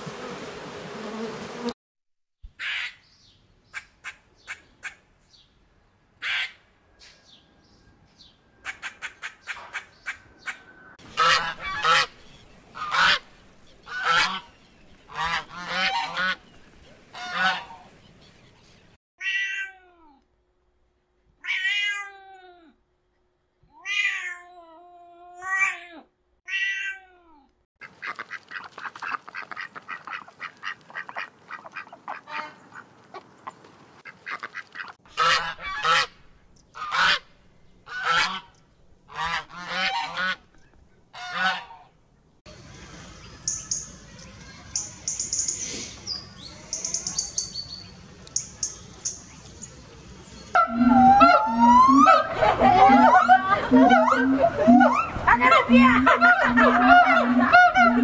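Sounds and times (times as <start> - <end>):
waterfowl honking: 6.2 - 6.6, 8.6 - 12.2, 12.8 - 16.4, 17.1 - 17.9, 27.8 - 36.2, 36.8 - 37.3, 37.9 - 40.4, 41.1 - 41.9, 50.5 - 58.0
rapid noisy bird chatter: 8.6 - 19.0, 42.5 - 50.6
drawn-out downward bending calls: 42.5 - 58.0.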